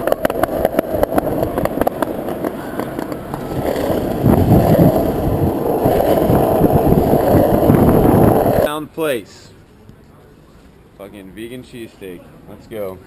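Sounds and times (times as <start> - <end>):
skateboard wheels rolling on pavement: 0.0 - 8.7
wheels clicking over sidewalk joints: 0.0 - 8.7.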